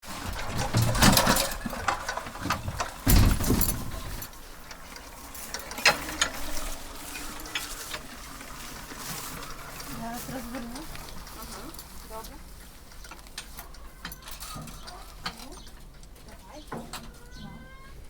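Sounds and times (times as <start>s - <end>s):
heavy thumps: 0.2s - 4.3s.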